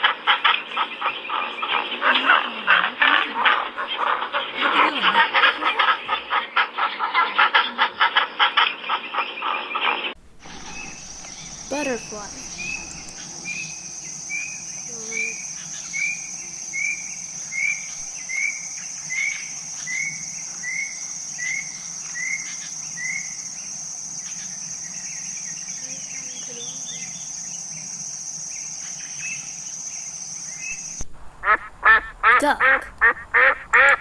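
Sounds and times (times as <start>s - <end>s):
insects trilling: 10.2s - 34.0s.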